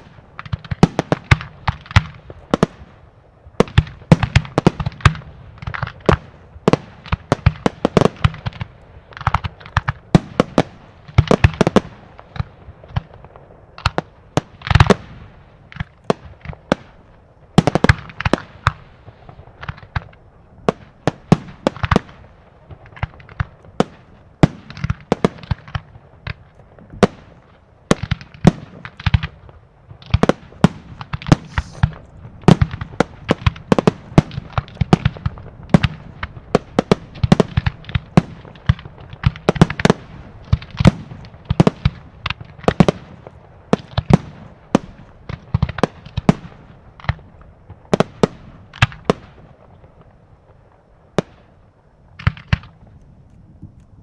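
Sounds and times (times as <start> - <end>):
fireworks shells bursting: 30.0 - 42.0.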